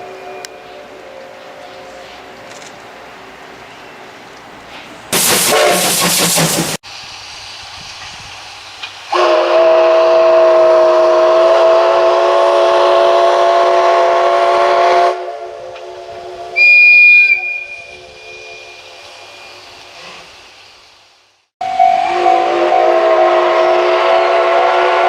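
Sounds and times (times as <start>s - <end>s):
steam locomotive chime whistle: 0.0s - 2.2s, 5.2s - 6.1s, 9.1s - 20.2s, 21.6s - 25.0s
background hiss: 0.0s - 9.5s, 15.2s - 21.5s
shrill high-pitched tone: 21.6s - 24.3s.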